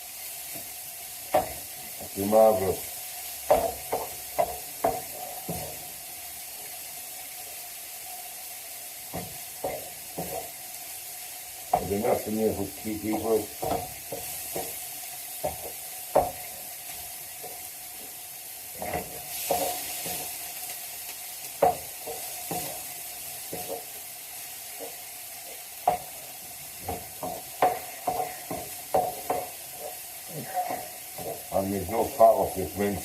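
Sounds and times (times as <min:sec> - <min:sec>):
meat sizzling in a frying pan: 0:00.0 - 0:33.0
utensil scraping a pan: 0:18.8 - 0:20.4, 0:26.8 - 0:32.2.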